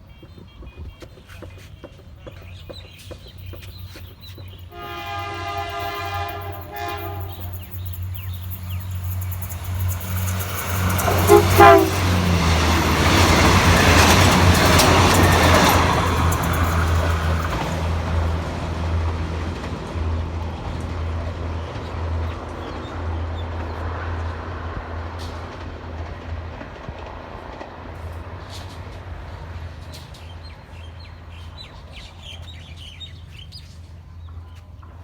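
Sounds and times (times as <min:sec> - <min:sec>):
birds chirping: 0:00.0 - 0:18.7
passenger train rumbling past: 0:00.0 - 0:35.0.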